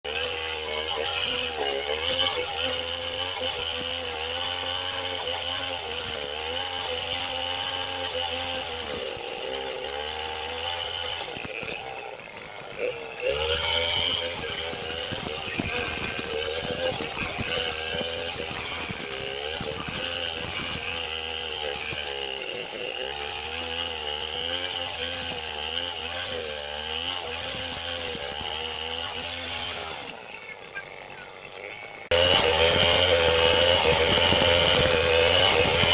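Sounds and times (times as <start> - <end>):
chainsaw cutting wood: 0.0 - 35.9.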